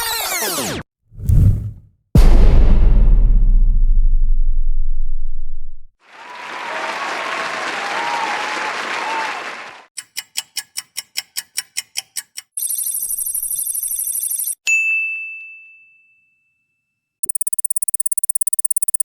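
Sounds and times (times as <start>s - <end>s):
deep boom: 1.2s - 5.9s
crowd applause: 6.0s - 9.9s.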